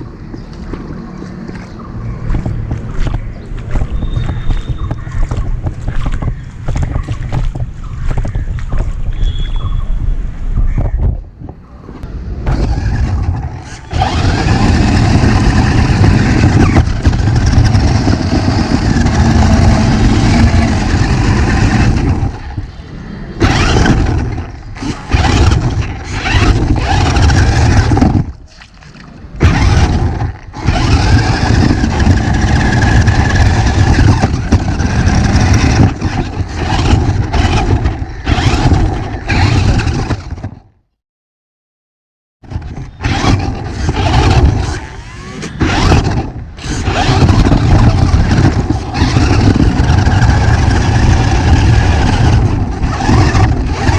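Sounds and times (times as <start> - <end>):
rumble over rough ground: 0.0 - 40.9, 42.4 - 53.9
toy car motor whining: 12.5 - 22.4, 23.4 - 28.2, 29.4 - 40.4, 42.5 - 53.9.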